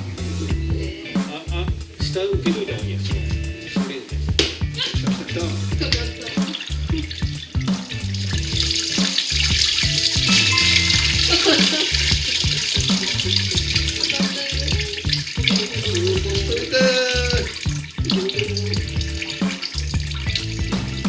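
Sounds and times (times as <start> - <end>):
background music with steady beat: 0.0 - 21.0
coolant water gushing and splashing: 3.1 - 21.0.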